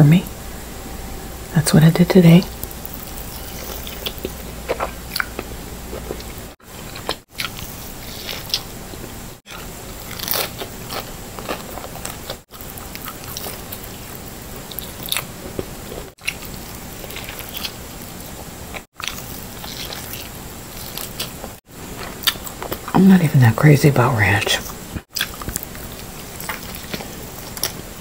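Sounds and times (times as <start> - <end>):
crust crunching: 2.5 - 8.7
person chewing pizza: 2.6 - 23.0, 25.1 - 28.0.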